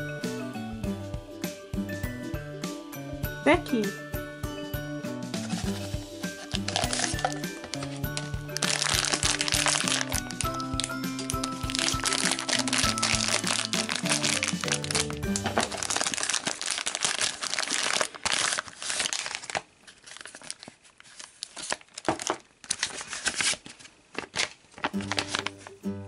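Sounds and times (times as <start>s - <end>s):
light music: 0.0s - 16.9s, 24.8s - 26.0s
paper insert crackling: 5.4s - 25.8s
plastic packet crinkling: 5.4s - 25.8s.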